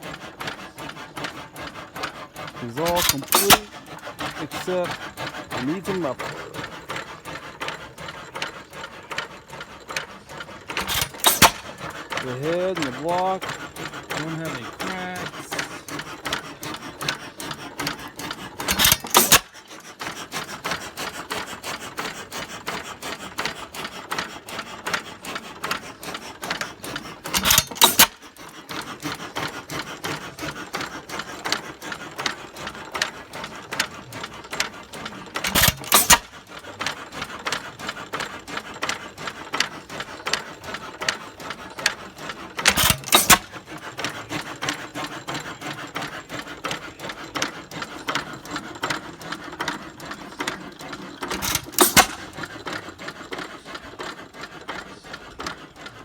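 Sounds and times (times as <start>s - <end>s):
engine clicking steadily: 0.0s - 56.0s
engine firing strokes: 1.5s - 7.8s.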